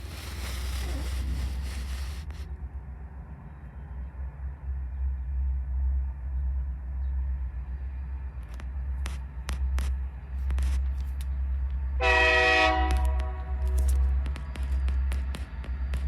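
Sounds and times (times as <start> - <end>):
diesel locomotive rumbling: 0.0 - 16.0
train clicks and knocks: 4.9 - 16.0
train horn blast: 12.0 - 13.8.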